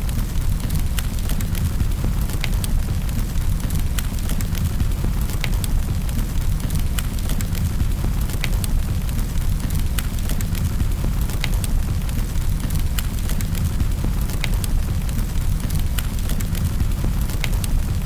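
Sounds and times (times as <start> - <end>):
fireplace fire crackling: 0.0 - 18.0.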